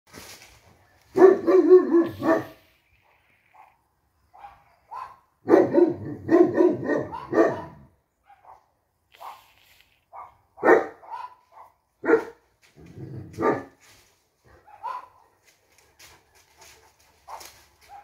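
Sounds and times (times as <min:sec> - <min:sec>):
dogs barking rapidly: 0:01.1 - 0:02.6, 0:03.5 - 0:09.4, 0:10.2 - 0:12.4, 0:13.4 - 0:13.8, 0:14.5 - 0:15.4, 0:16.5 - 0:18.0.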